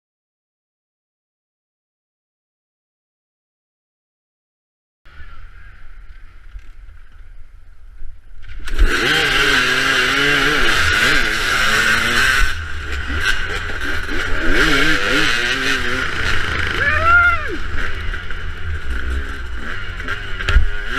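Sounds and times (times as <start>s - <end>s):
dirt bike engines revving: 5.1s - 20.9s.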